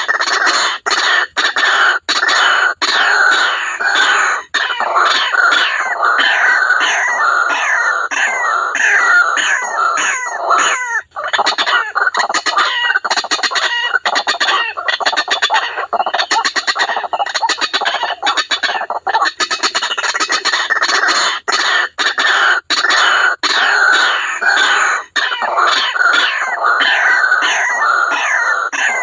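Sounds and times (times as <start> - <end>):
bird calling harshly: 0.0 - 29.0.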